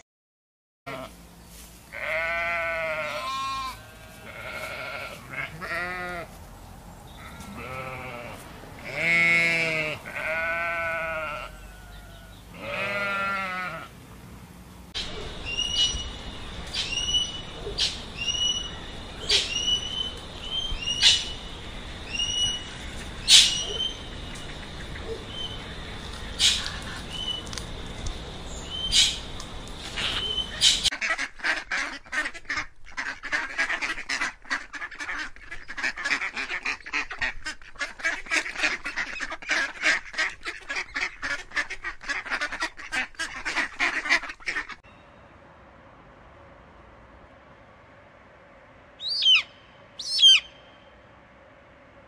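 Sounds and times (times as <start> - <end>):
sheep bleating: 0.9 - 1.2, 1.9 - 6.4, 7.2 - 13.9
bird chirping: 15.0 - 30.9, 49.0 - 50.9.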